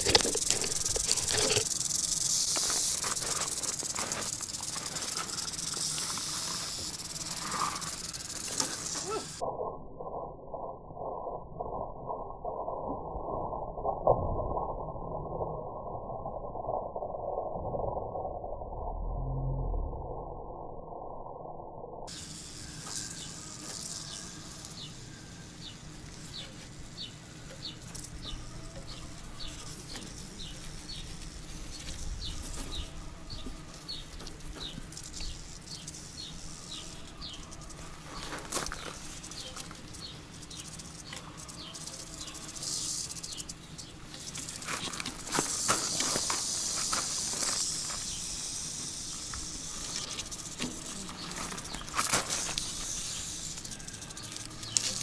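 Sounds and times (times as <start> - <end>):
outdoor rustling: 0.0 - 9.5, 22.1 - 55.0
muffled low rumble: 9.3 - 22.1
bird chirping: 23.0 - 44.5, 49.9 - 52.0.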